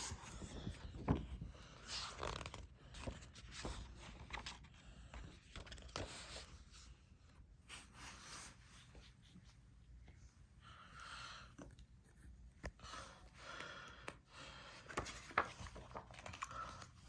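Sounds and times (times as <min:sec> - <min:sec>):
book pages rustling and turning: 0:00.0 - 0:09.6, 0:14.0 - 0:17.0.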